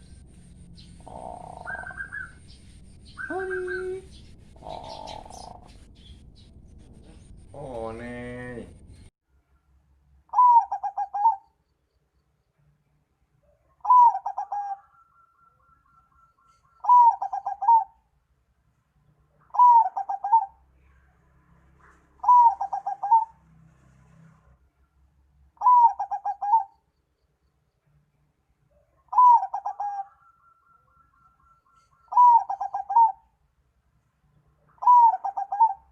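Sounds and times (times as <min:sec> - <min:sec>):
dove cooing song: 0:00.8 - 0:06.1, 0:10.3 - 0:11.5, 0:13.8 - 0:18.0, 0:19.5 - 0:20.6, 0:22.2 - 0:23.4, 0:25.6 - 0:26.8, 0:29.1 - 0:33.3, 0:34.7 - 0:35.9.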